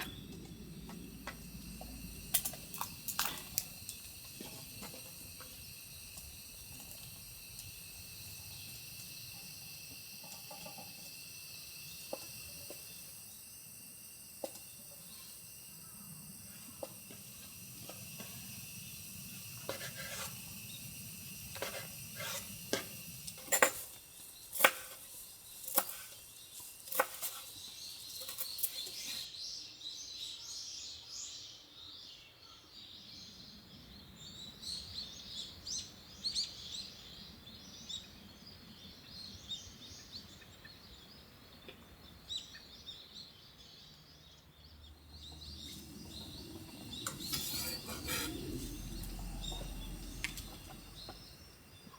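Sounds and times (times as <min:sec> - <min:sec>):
high-pitched hiss: 0:00.0 - 0:30.3, 0:44.3 - 0:51.9
small birds chirping: 0:00.0 - 0:51.9.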